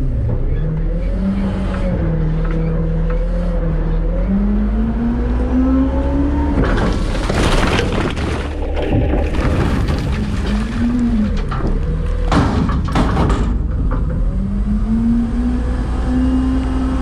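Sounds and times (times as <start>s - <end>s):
garbage truck diesel engine revving: 0.0s - 12.8s, 13.6s - 17.0s
loud rattling clatter: 6.6s - 14.4s.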